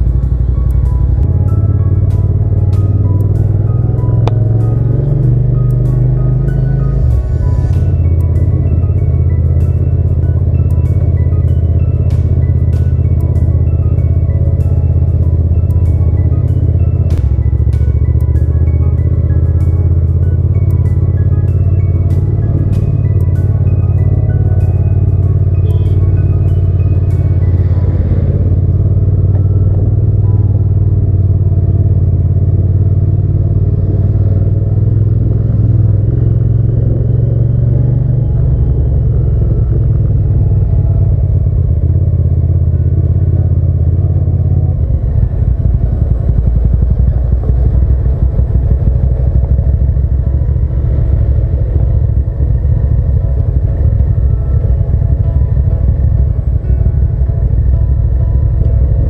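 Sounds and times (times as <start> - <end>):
motorcycle engine rumbling: 0.0 - 59.0
road noise: 0.0 - 59.0.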